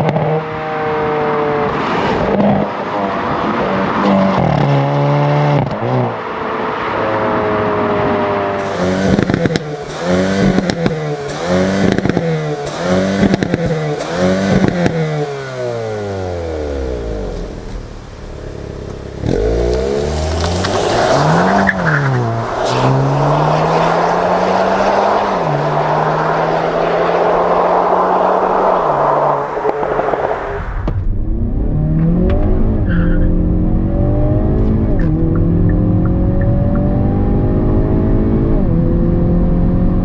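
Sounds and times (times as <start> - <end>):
car engine revving with crackles: 0.0 - 40.0
road noise: 0.0 - 40.0
wind noise: 19.9 - 40.0.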